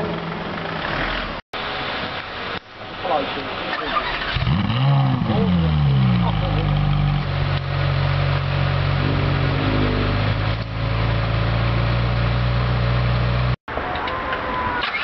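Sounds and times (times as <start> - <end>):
car engine idling: 0.0 - 13.6.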